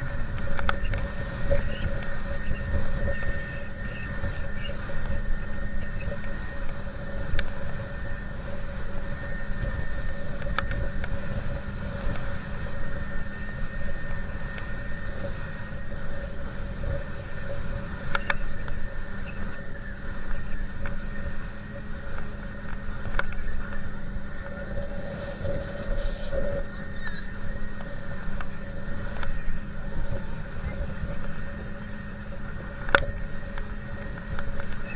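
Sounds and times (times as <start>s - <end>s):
motorboat engine humming: 0.0s - 34.9s
wind and water rumble: 0.0s - 34.9s.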